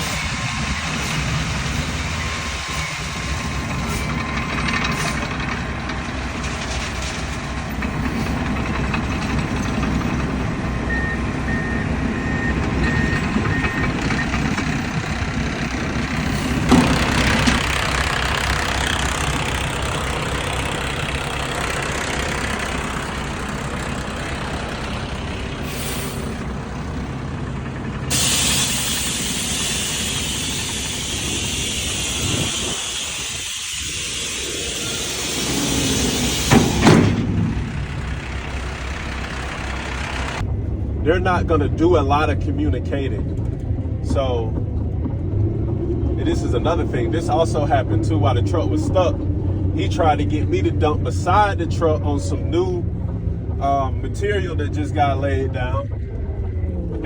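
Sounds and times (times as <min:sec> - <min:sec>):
diesel truck engine running: 0:00.0 - 0:57.0
loud hissing: 0:14.6 - 0:40.4.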